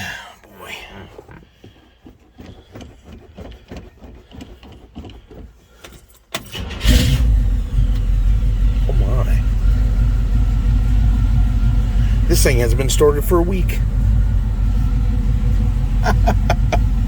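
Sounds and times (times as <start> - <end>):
car engine rumbling: 0.0 - 17.0
starter motor cranking: 6.3 - 17.0.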